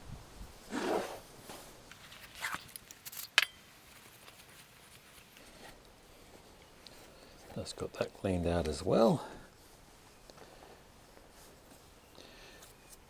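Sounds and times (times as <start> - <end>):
light metallic clinks: 1.9 - 5.5.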